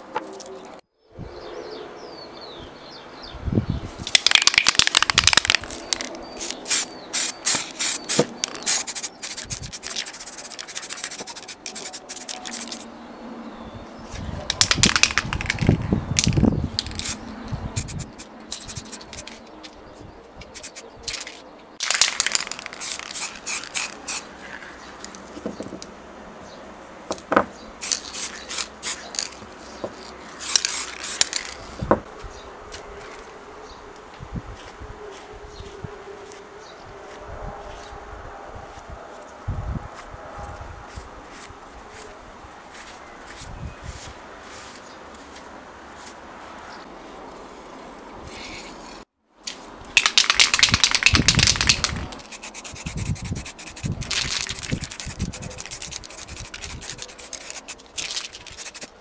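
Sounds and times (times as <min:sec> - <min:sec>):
aerosol spray can hissing: 0:06.6 - 0:12.8, 0:17.8 - 0:19.2, 0:22.6 - 0:24.3, 0:51.6 - 0:57.8, 0:58.5 - 0:58.9.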